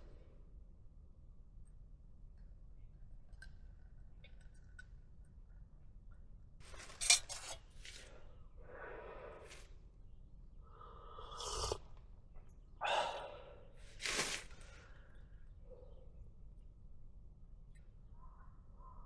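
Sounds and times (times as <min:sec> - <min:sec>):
camping gear rustling and scraping: 0:06.6 - 0:08.3, 0:13.9 - 0:14.9.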